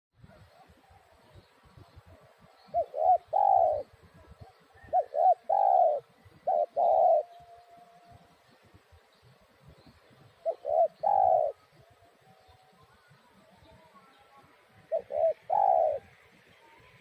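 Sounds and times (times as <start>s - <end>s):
dove cooing: 2.1s - 8.3s, 10.4s - 12.6s, 14.6s - 16.3s.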